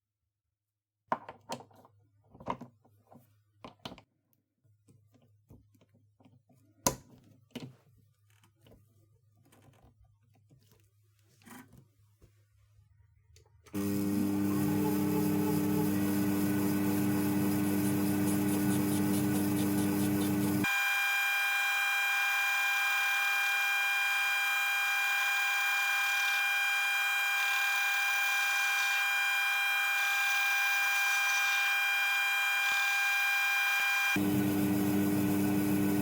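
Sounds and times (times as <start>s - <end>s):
lathe whining: 13.8s - 36.0s.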